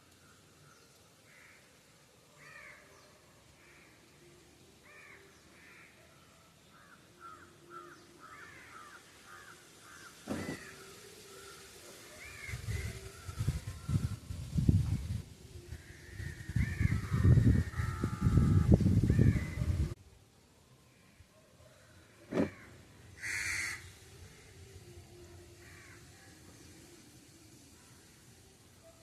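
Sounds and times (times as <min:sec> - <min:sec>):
crows cawing: 0:01.3 - 0:01.6, 0:02.4 - 0:02.8, 0:04.8 - 0:06.0, 0:06.8 - 0:10.8, 0:22.4 - 0:23.9, 0:25.6 - 0:26.0.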